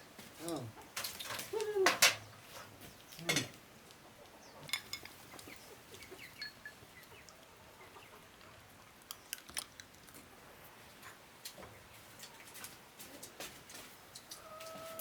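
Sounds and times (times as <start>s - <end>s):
chickens clucking: 0.5s - 9.0s, 14.1s - 15.0s.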